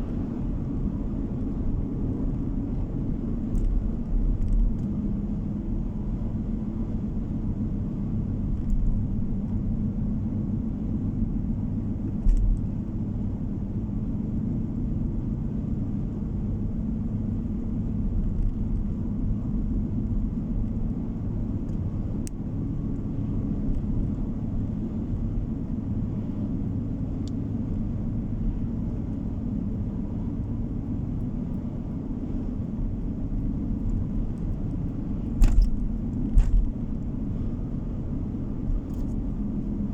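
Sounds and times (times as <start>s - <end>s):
car interior rumble: 0.0s - 39.9s.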